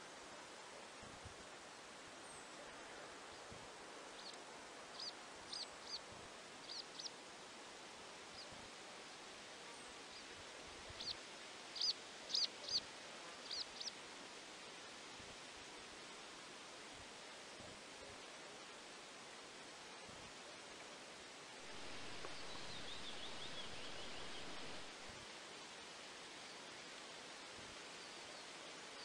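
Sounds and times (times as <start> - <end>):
steady soft hiss: 0.0 - 29.0
small bird chirping: 4.2 - 6.0, 6.6 - 7.1, 11.0 - 11.2, 11.8 - 12.8, 13.4 - 13.9, 21.7 - 24.9.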